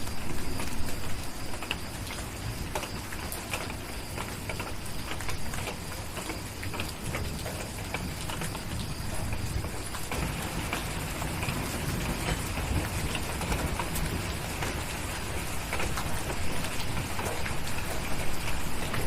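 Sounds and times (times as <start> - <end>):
steady rain: 0.0 - 19.0
wood fire crackling: 0.0 - 19.0.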